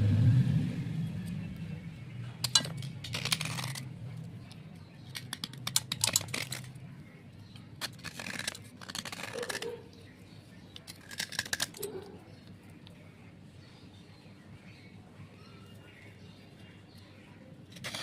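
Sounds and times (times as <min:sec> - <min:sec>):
slate crunching and crackling: 0:02.2 - 0:13.0, 0:16.9 - 0:18.0.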